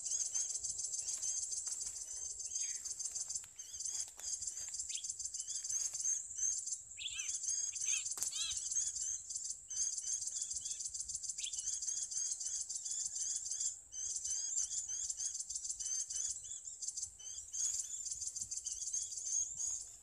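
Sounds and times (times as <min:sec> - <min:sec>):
bird chirping: 0:00.0 - 0:20.0
rapid high bird trill: 0:00.0 - 0:20.0.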